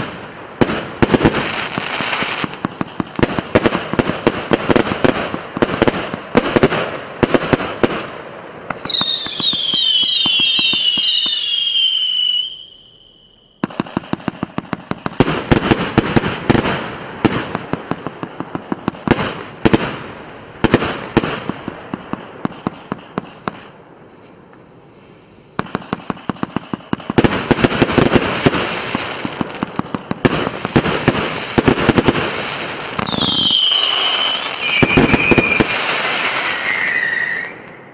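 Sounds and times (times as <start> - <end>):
fireworks bangs and crackling: 0.0 - 37.9
fireworks falling whistles: 1.0 - 2.6, 8.7 - 14.2, 30.5 - 37.9.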